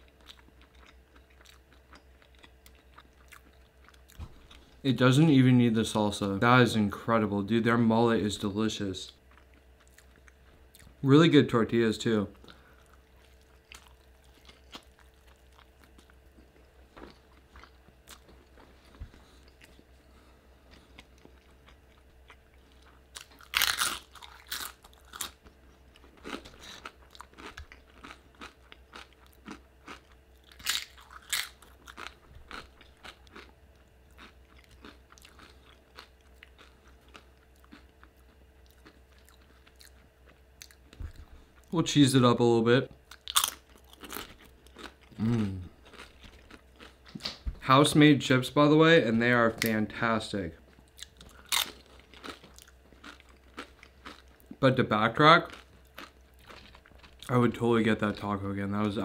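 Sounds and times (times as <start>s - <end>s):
soft chewing: 0.0s - 4.8s, 9.1s - 11.0s, 12.3s - 41.8s, 42.9s - 47.4s, 50.6s - 57.4s
crunching tortilla chips: 20.7s - 40.0s, 43.1s - 47.4s, 50.8s - 57.6s.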